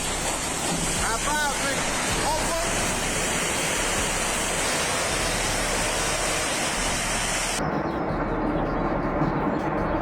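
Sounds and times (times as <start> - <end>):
high hiss: 0.0 - 7.6
water rushing: 0.0 - 7.6.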